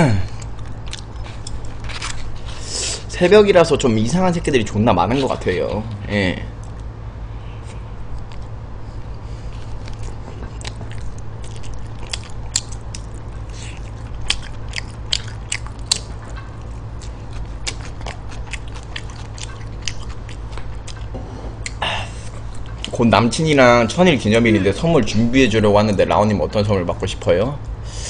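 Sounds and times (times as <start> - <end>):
steady low hum: 0.0 - 28.0
chewing food: 0.3 - 2.6, 7.6 - 23.0.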